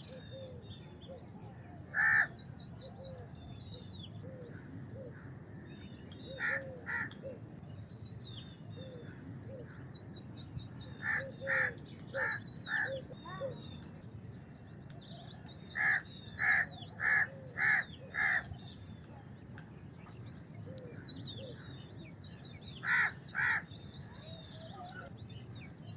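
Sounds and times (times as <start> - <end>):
small birds twittering: 0.0 - 25.9
crows cawing: 1.9 - 2.4, 6.4 - 7.2, 11.0 - 13.0, 15.8 - 18.6, 22.8 - 23.8.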